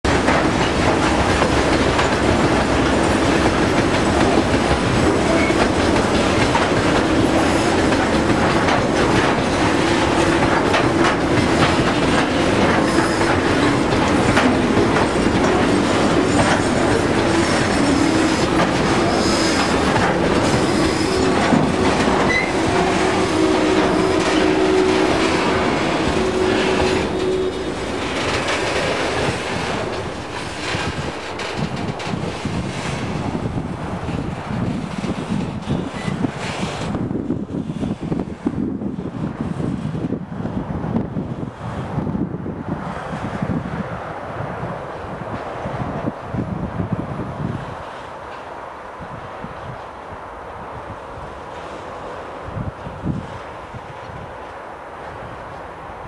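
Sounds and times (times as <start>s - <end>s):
wheels clicking on rail: 0.0s - 38.5s
train rumbling: 0.0s - 56.0s.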